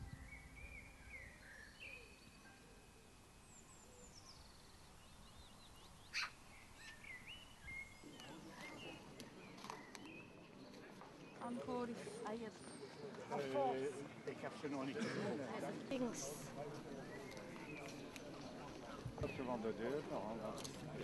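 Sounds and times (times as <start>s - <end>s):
faint birdsong: 0.0s - 14.2s, 15.8s - 20.4s
outdoor hush: 0.0s - 20.9s
murmur of voices: 8.0s - 21.0s.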